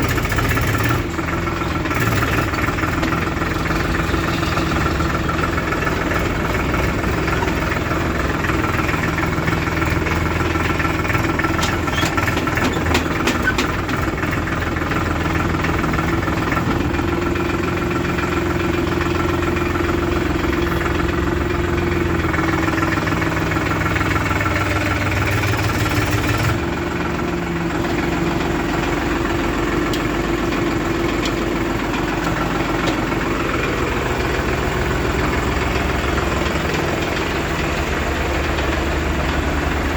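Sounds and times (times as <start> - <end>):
diesel engines idling: 0.0 - 39.9.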